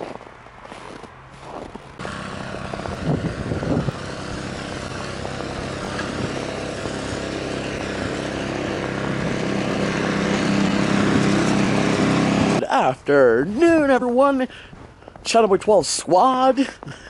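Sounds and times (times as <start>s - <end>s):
vehicle engine running: 0.1s - 12.6s
broad rushing noise: 1.4s - 12.8s.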